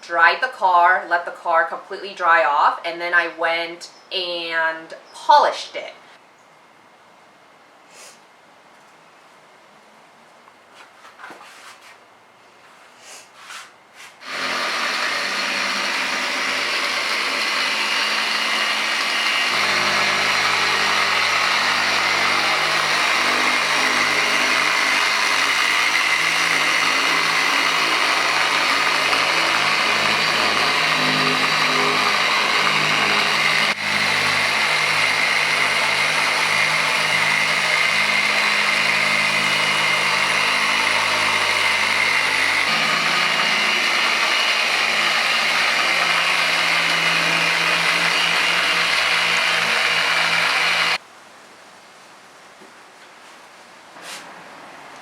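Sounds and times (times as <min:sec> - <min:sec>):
electric polisher running: 0:14.2 - 0:51.0.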